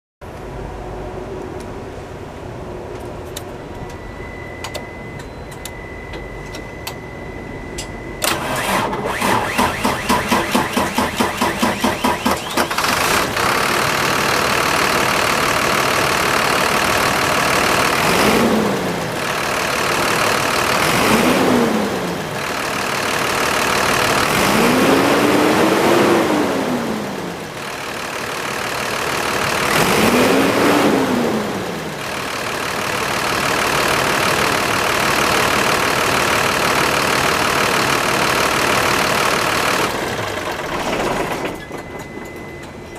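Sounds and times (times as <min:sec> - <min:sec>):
steady high tone: 0:02.6 - 0:08.3
diesel engine idling: 0:07.6 - 0:42.9
diesel engine cranking: 0:07.8 - 0:42.9
engine revving: 0:08.2 - 0:15.2, 0:16.1 - 0:27.5, 0:29.3 - 0:32.6.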